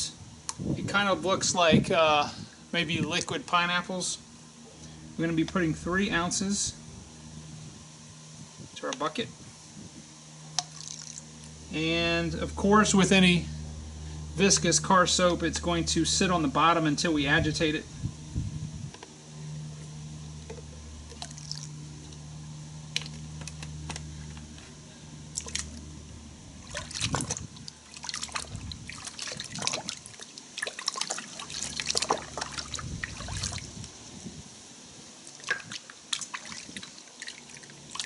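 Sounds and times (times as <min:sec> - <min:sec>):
low steady hum: 0:00.0 - 0:38.0
water splashing in a bucket: 0:10.6 - 0:11.5, 0:20.5 - 0:21.8, 0:25.3 - 0:25.9, 0:26.5 - 0:34.0, 0:35.2 - 0:38.0.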